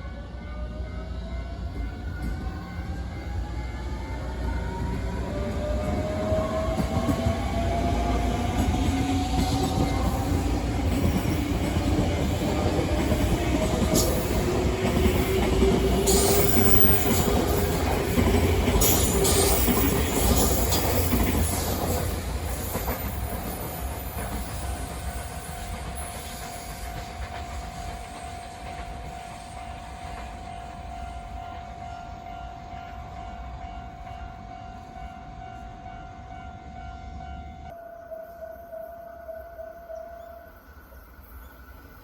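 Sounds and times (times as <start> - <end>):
train wheels clicking over rail joints: 5.6 - 29.4.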